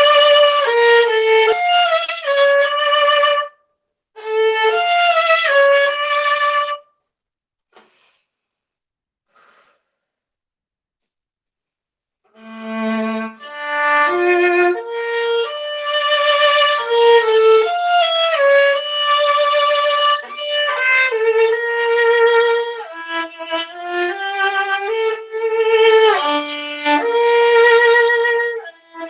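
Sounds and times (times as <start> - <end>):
solo viola bowed: 0.0 - 3.6, 4.2 - 6.9, 12.4 - 29.0.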